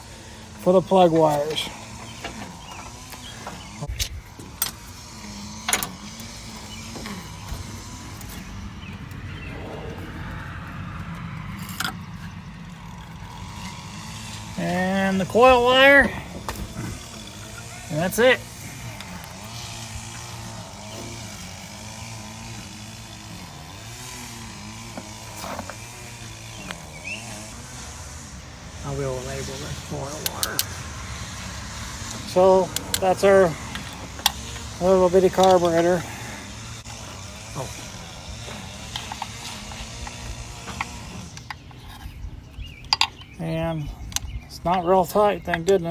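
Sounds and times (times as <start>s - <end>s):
engine running: 0.0s - 45.9s
steady low rumble: 6.0s - 20.0s
clicks and knocks of handling parts: 42.8s - 43.3s.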